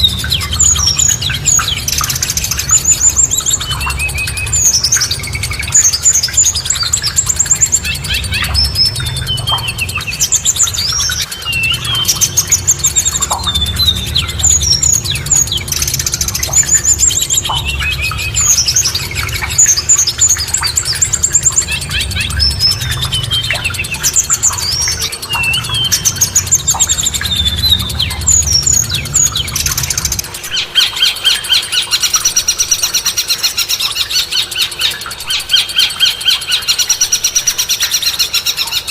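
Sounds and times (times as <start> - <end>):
low steady rumble: 0.0 - 30.7
songbirds chirping and whistling: 0.0 - 38.9.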